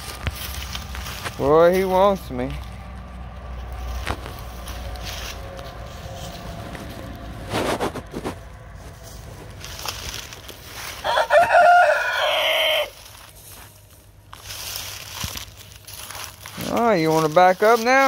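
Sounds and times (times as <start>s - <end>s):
rooster crowing: 10.8s - 13.1s
short scuffing sounds: 12.9s - 16.8s.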